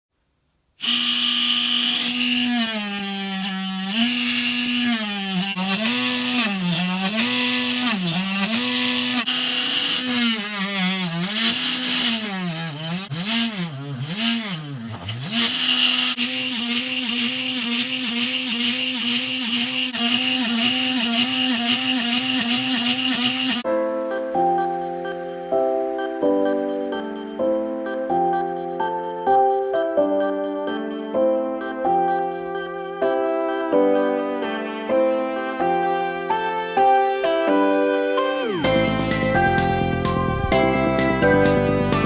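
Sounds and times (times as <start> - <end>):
small electric motor whining: 0.8 - 23.6.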